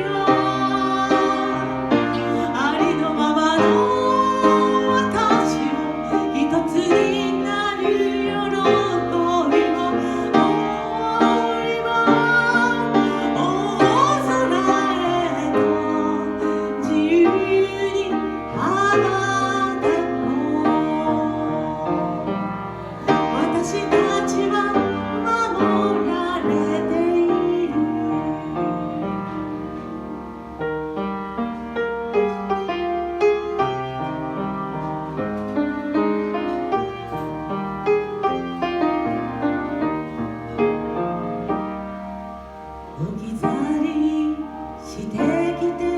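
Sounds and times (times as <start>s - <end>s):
woman singing a slow ballad: 0.0s - 30.6s, 43.0s - 45.9s
instrumental accompaniment: 0.0s - 45.9s.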